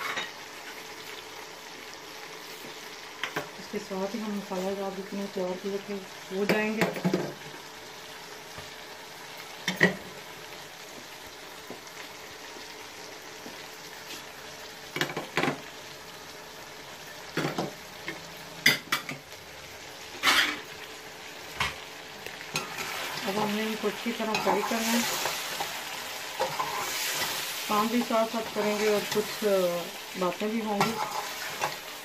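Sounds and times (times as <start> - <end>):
food sizzling in a pot: 0.0 - 32.0
metal spatula scraping a pot: 26.4 - 27.4, 30.8 - 31.8.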